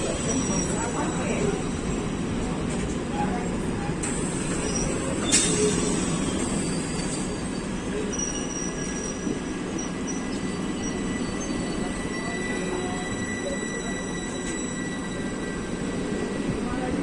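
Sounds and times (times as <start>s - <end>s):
train wheels rumbling on rails: 0.0s - 17.0s
high wheel squeal: 4.1s - 16.3s.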